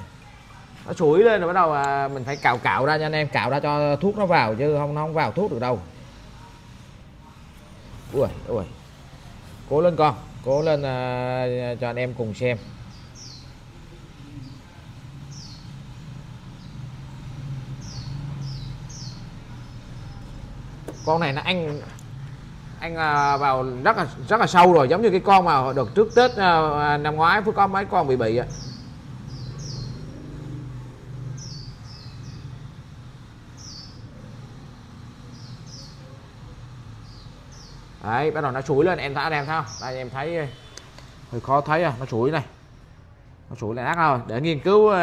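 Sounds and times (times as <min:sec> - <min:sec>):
steady low hum: 0:00.0 - 0:44.8
small bird chirping: 0:11.9 - 0:23.6, 0:28.4 - 0:30.7, 0:31.3 - 0:32.7, 0:33.5 - 0:34.1, 0:37.0 - 0:38.1, 0:39.3 - 0:41.2.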